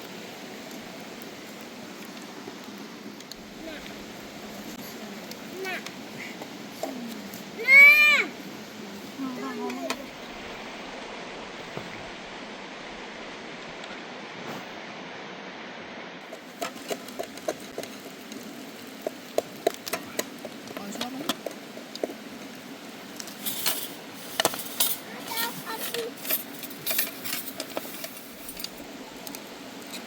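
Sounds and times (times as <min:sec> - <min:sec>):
steady background hiss: 0:00.0 - 0:30.0
dishes and utensils clinking: 0:23.4 - 0:28.8.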